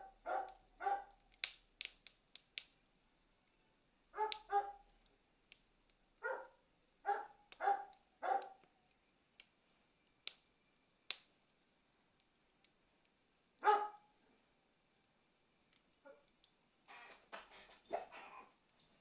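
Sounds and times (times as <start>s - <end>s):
dog barking: 0.0s - 1.2s, 4.2s - 4.8s, 6.2s - 8.6s, 13.6s - 14.1s, 17.9s - 18.5s
campfire crackling and popping: 0.0s - 17.9s.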